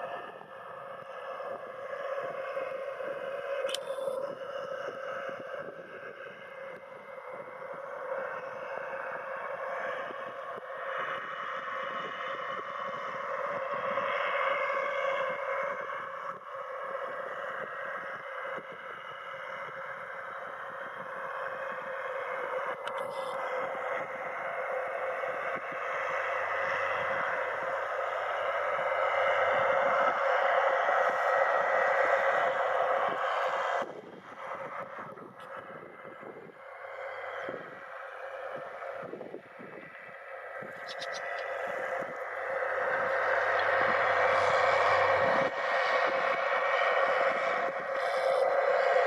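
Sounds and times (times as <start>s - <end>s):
tractor diesel engine under load: 0.0s - 49.0s
wind buffeting microphone: 0.0s - 49.0s.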